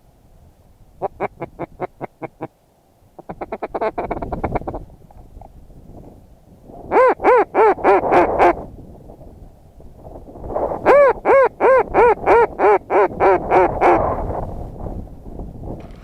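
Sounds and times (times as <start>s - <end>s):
wind hiss: 0.0s - 6.9s, 7.9s - 11.0s, 13.5s - 16.0s
duck quacking: 1.0s - 2.5s, 3.2s - 4.8s, 6.9s - 8.6s.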